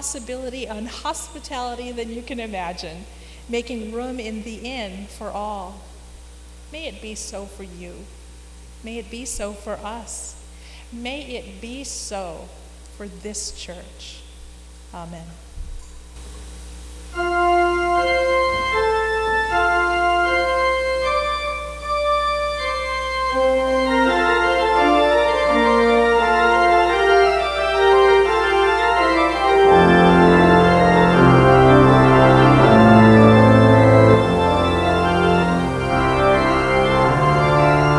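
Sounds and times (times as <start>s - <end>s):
church organ playing slow piece: 17.1s - 37.9s.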